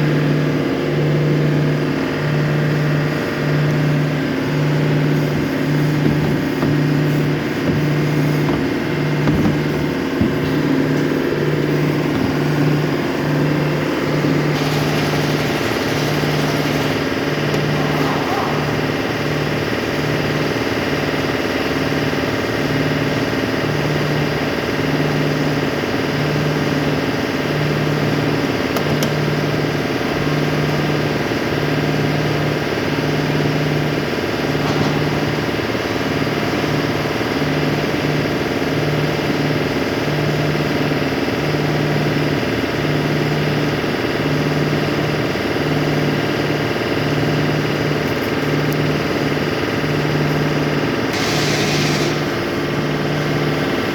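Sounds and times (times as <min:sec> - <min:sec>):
engine idling: 0:00.0 - 0:53.9.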